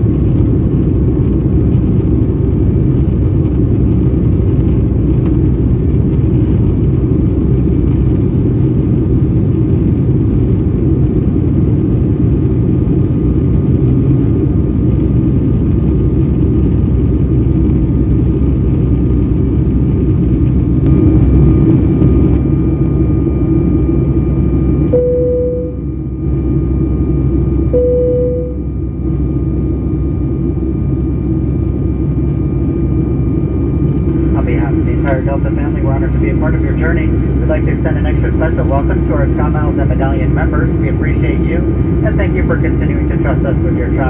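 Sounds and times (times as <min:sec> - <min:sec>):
jet engines roaring in cabin: 0:00.0 - 0:44.0
faint steady whine: 0:12.0 - 0:44.0
short clear tone: 0:24.9 - 0:25.9, 0:27.7 - 0:28.8.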